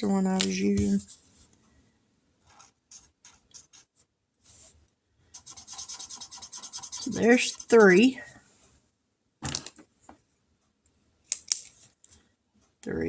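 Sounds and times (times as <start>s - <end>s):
colouring tool scribbling on paper: 2.5s - 4.0s, 5.3s - 8.2s.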